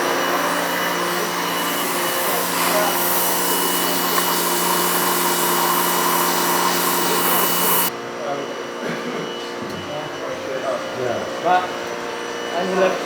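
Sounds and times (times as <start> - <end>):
power tool motor whirring: 0.0 - 7.9.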